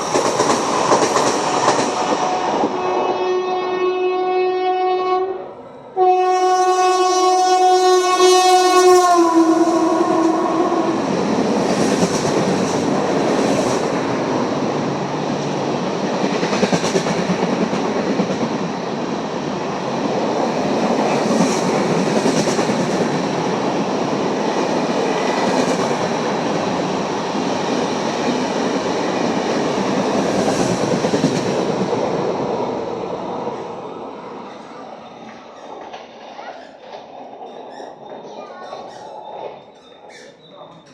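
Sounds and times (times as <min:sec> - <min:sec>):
train coaches rushing past: 0:00.0 - 0:40.9
locomotive horn blaring: 0:02.2 - 0:11.2.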